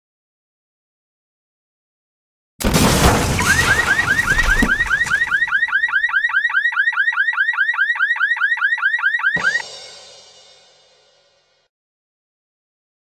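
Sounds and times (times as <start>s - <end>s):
crash on windshield: 2.6s - 5.6s
car alarm chirping: 3.4s - 9.7s.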